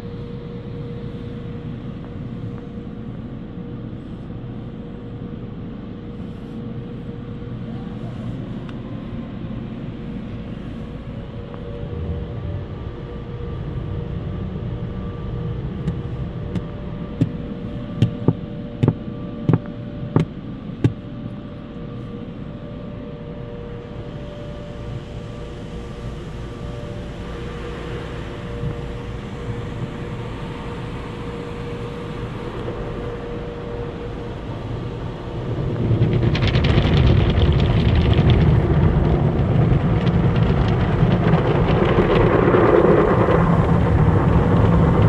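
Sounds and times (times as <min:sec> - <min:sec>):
car wash machinery hum: 0:00.0 - 0:45.0.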